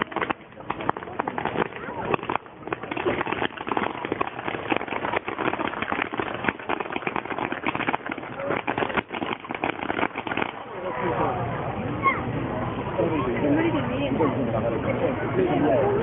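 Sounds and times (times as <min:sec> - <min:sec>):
fireworks crackling and popping: 0:00.0 - 0:10.7.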